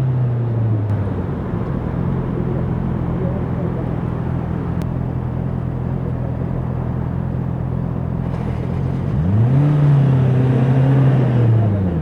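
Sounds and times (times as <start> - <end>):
motorcycle engine revving: 0.9 - 6.8.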